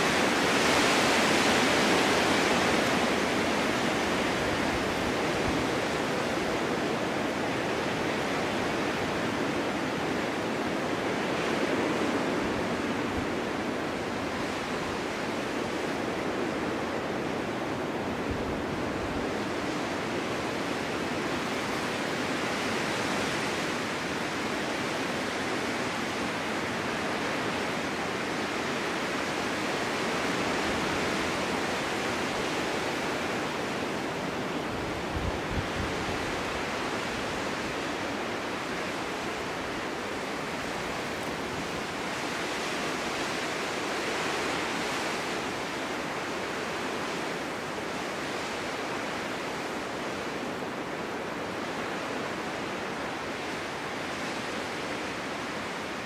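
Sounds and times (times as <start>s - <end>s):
snowstorm wind rushing: 0.0s - 56.0s.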